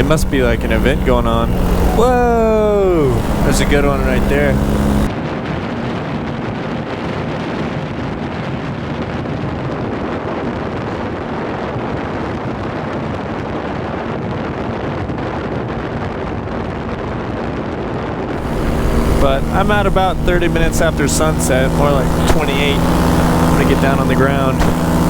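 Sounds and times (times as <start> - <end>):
paramotor engine running: 0.0 - 9.0, 18.4 - 25.0.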